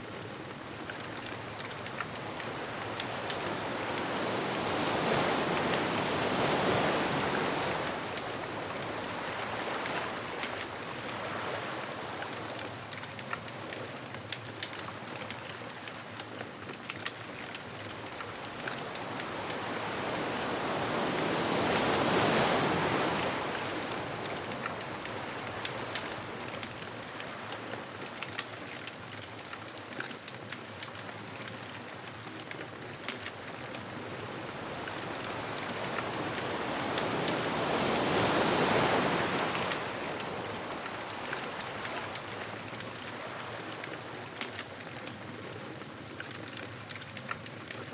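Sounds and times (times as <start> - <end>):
bonfire crackling and popping: 0.0 - 47.9
ocean waves breaking: 0.2 - 13.4, 17.2 - 29.0, 33.2 - 45.8.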